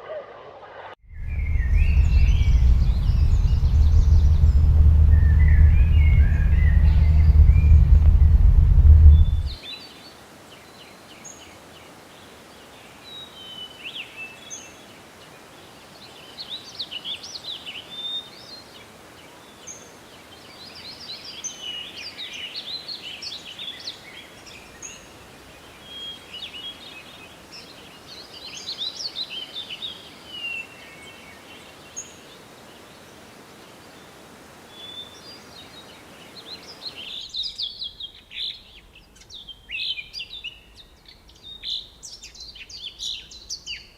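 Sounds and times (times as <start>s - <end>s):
birds chirping: 1.2s - 9.6s
forest ambience hiss: 1.2s - 43.9s.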